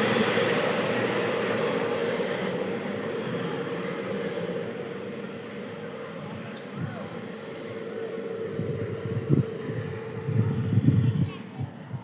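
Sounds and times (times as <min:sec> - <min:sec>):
helicopter running: 0:00.0 - 0:12.0.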